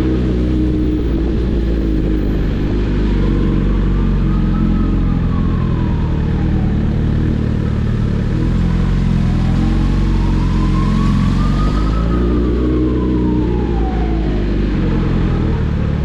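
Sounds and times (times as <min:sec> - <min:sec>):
high whine: 0:00.0 - 0:05.8
superbike engine drone: 0:00.0 - 0:16.0.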